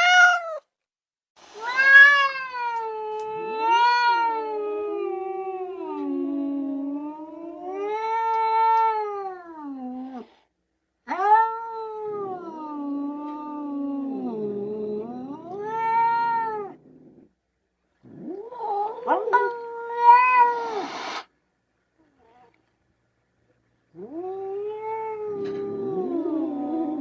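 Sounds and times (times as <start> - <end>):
cat yowling: 0.0 - 0.6, 1.6 - 10.3, 11.1 - 16.8, 18.2 - 21.2, 24.0 - 27.0.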